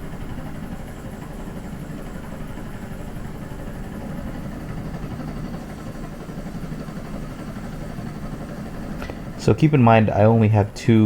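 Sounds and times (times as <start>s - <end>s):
low engine-like rumble: 0.0s - 11.0s.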